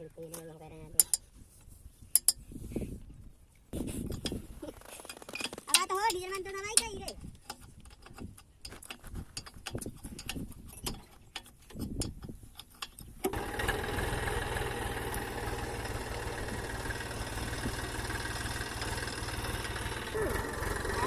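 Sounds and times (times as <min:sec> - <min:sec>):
handling clicks and knocks: 0:05.0 - 0:13.4
diesel engine starting and running: 0:13.2 - 0:21.0.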